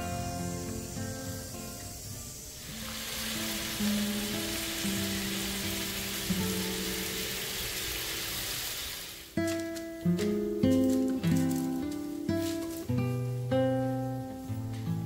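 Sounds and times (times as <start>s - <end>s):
food sizzling in a pan: 0.0s - 9.5s.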